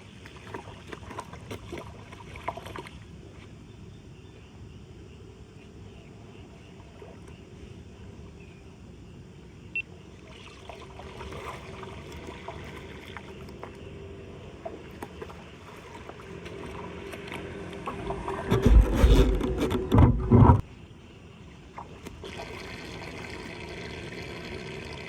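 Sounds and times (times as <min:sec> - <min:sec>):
water pouring into drain: 0:10.3 - 0:13.6, 0:22.0 - 0:25.0.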